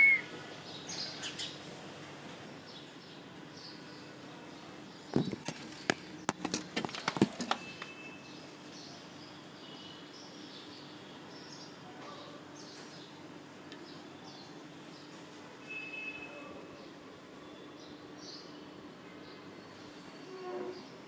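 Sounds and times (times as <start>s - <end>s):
birds chirping: 0.0s - 1.6s
sharp clicks and knocks: 5.2s - 7.9s.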